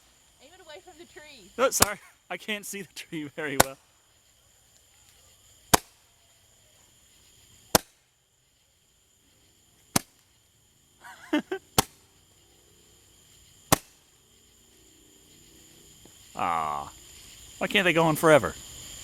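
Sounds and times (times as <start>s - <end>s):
roman candle firing pops: 3.5s - 3.8s, 5.7s - 6.1s, 7.7s - 8.0s, 9.9s - 10.3s, 11.8s - 12.0s, 13.7s - 14.0s.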